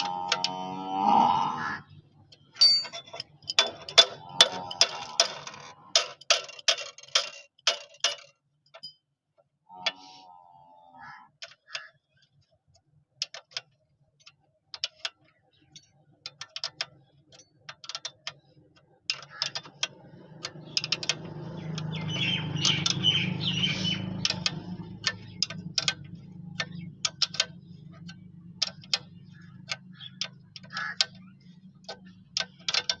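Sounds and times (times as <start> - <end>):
sharp clicks and clinks: 2.3 - 9.1.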